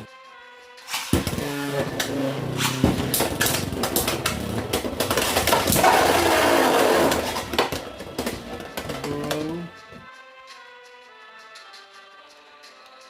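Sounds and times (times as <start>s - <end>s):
spinning tops whirring: 0.8s - 9.4s.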